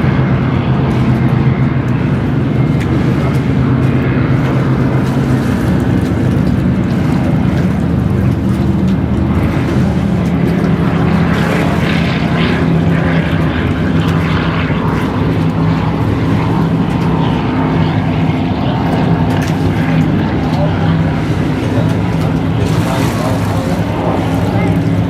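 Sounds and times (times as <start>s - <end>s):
powerboat engines droning: 0.0s - 25.0s.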